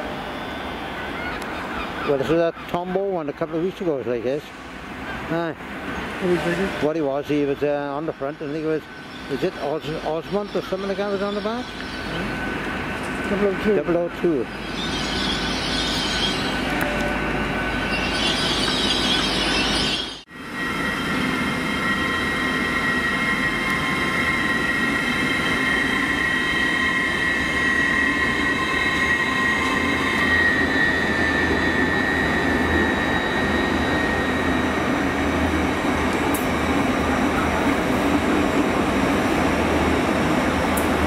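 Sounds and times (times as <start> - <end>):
train rumbling past slowly: 0.0 - 41.0
high squeal: 6.4 - 12.7, 13.7 - 37.7.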